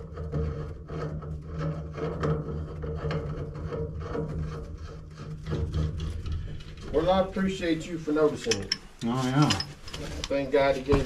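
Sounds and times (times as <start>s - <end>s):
tools scraping metal fittings: 8.3s - 10.6s.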